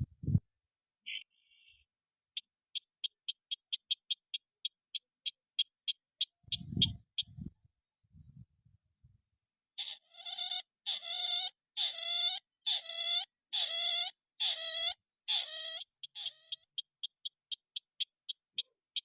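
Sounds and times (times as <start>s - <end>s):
rail bird calling: 1.1s - 1.8s, 2.4s - 7.5s, 9.8s - 19.0s.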